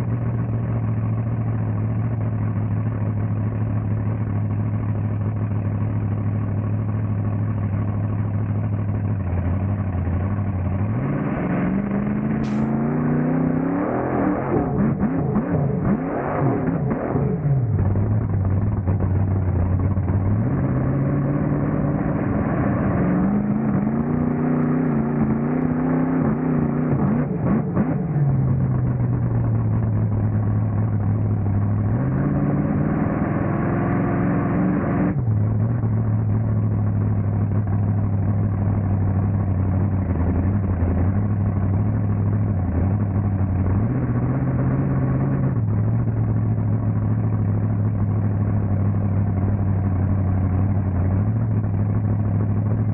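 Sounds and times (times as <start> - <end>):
truck engine revving: 10.8 - 18.2, 20.2 - 29.1, 31.8 - 35.8, 43.6 - 45.8.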